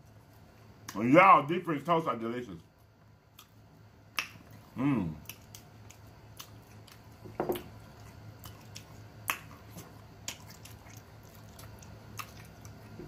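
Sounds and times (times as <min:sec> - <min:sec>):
chewing with wet lip smacks: 0:03.3 - 0:03.6, 0:04.2 - 0:13.0.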